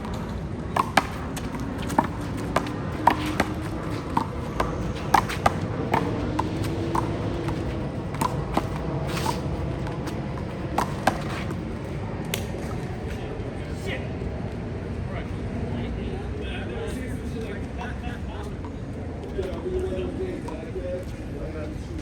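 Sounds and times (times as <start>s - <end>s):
handball smacks: 0.1s - 11.6s.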